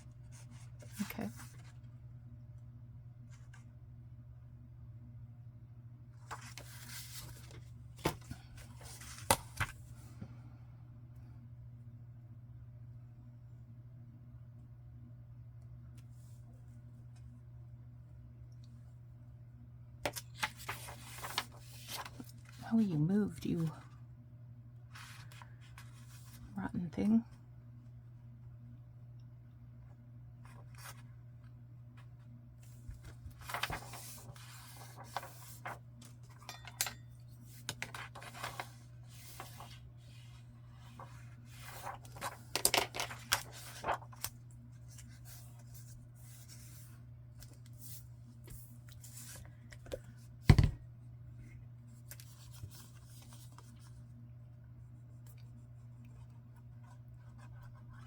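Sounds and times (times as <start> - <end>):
paper rustling and sliding: 6.2 - 10.0, 20.1 - 22.6, 24.9 - 26.4, 32.7 - 35.8, 37.5 - 49.5.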